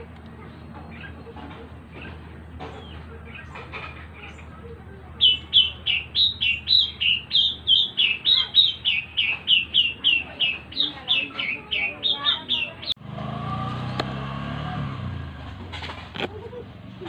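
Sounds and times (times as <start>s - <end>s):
bird chirping rapidly: 5.2s - 13.0s.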